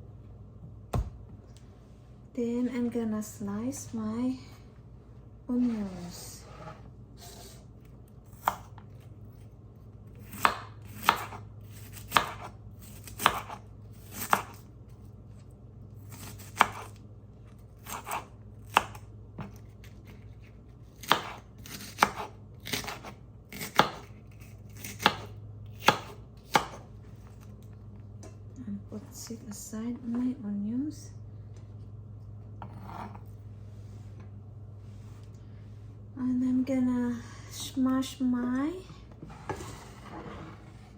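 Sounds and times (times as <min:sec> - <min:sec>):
knife chopping on cutting board: 0:08.4 - 0:08.8, 0:10.2 - 0:14.6, 0:16.2 - 0:17.0, 0:17.8 - 0:20.2, 0:21.0 - 0:26.8.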